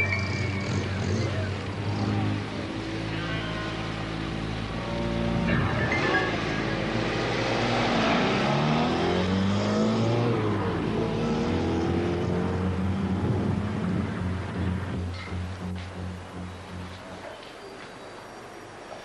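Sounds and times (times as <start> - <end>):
car engine accelerating: 0.0 - 17.3.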